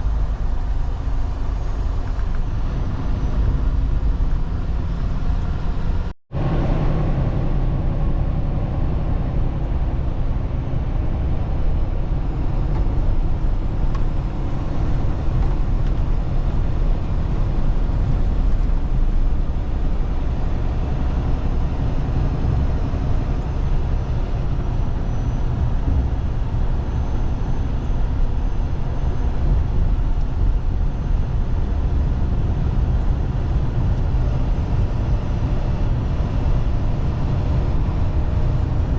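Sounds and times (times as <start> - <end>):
vehicle engine and road noise: 0.0 - 38.9.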